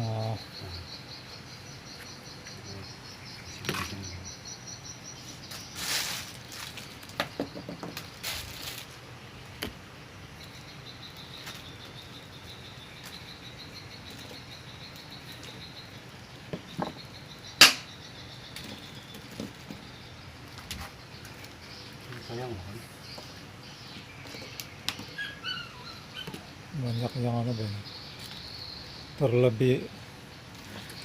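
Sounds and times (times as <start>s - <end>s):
faint high pulsing chirp: 0.0s - 8.2s
rustling swishes: 5.5s - 6.9s
small knocks: 7.1s - 8.1s, 16.5s - 17.0s.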